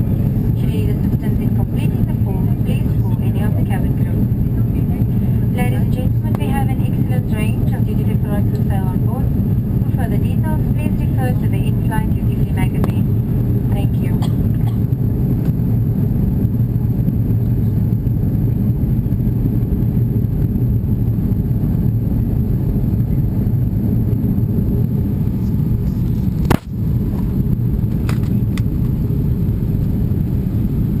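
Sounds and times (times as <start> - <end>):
aircraft cabin rumble: 0.0 - 31.0.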